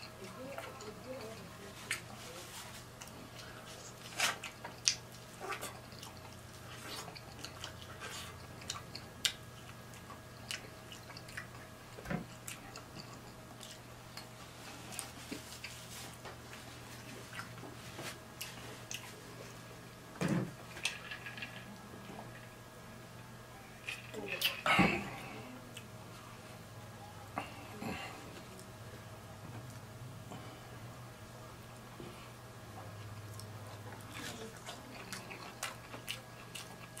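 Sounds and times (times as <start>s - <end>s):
faint steady hum: 0.0s - 37.0s
wet chewing smacks and clicks: 3.0s - 14.3s, 18.4s - 19.6s, 33.1s - 37.0s.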